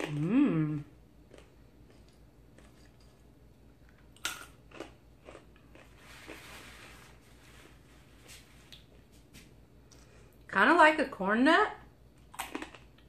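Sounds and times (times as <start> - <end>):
person chewing crunchy food: 0.0 - 0.4, 1.2 - 7.8, 12.2 - 13.0.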